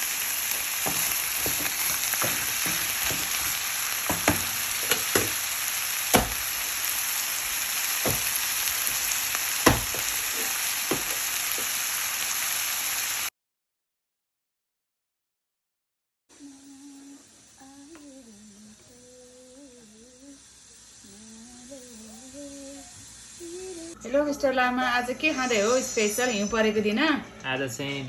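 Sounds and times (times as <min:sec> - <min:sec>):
chicken sizzling in hot oil: 0:00.0 - 0:13.3, 0:16.4 - 0:24.0
utensil clacking against cookware: 0:00.8 - 0:05.4.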